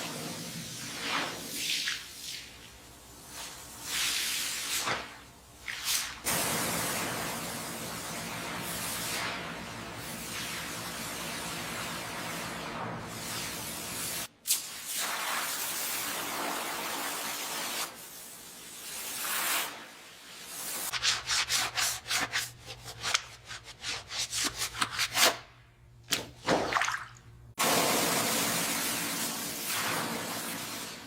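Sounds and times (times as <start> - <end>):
hand sanding rasping: 20.9 - 25.4.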